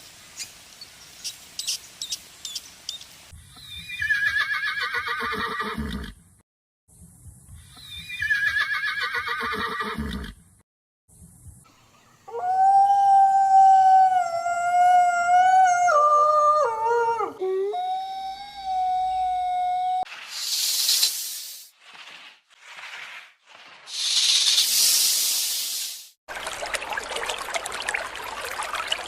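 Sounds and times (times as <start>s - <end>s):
horse whinnying: 3.8s - 6.1s, 8.0s - 10.4s
wolf howl: 12.3s - 20.0s.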